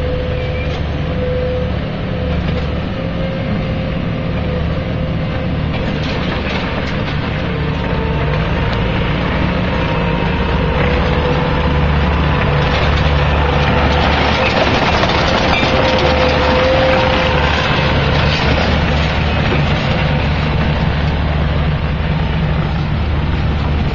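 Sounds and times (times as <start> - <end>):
skid-steer loader engine: 0.0 - 23.9
cracking and scraping: 5.3 - 21.5.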